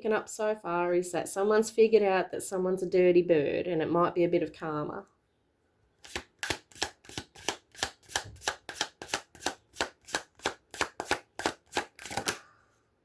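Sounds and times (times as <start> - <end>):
cards being shuffled: 6.0 - 12.4.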